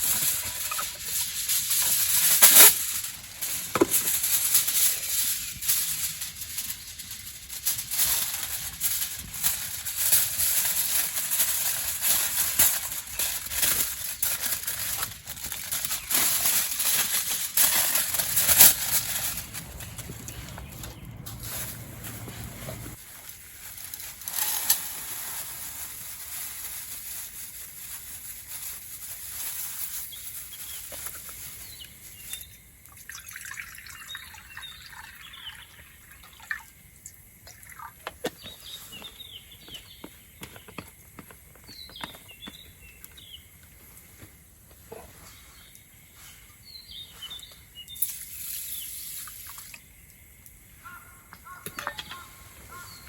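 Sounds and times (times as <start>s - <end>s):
small birds chirping: 18.2s - 23.0s, 29.4s - 32.8s, 33.8s - 36.4s, 37.7s - 44.2s, 44.8s - 49.0s, 49.6s - 53.0s
liquid hiss: 48.0s - 49.7s.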